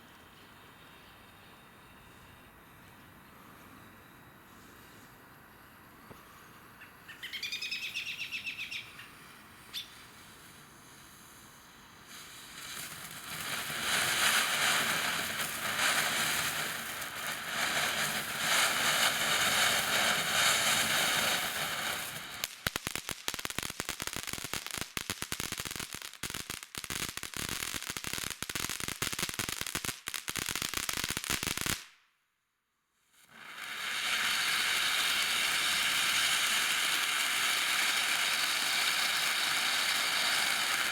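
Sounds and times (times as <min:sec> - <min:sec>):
firework spraying hiss: 0:09.2 - 0:31.9, 0:33.2 - 0:40.9
firework crackling: 0:09.2 - 0:32.0, 0:33.1 - 0:40.9.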